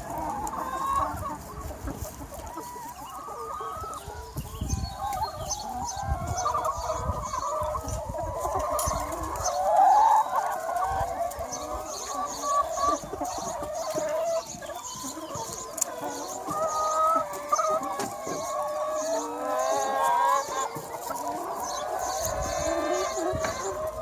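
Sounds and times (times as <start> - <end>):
hens clucking: 0.0 - 24.0
loud hen call: 5.6 - 24.0.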